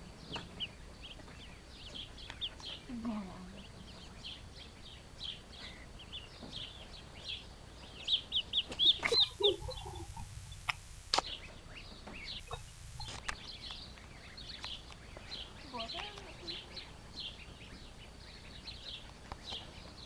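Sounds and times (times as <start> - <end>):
birds chirping: 0.0 - 20.0
loud quick bird calls: 8.0 - 13.9
sharp clicks: 10.6 - 11.4.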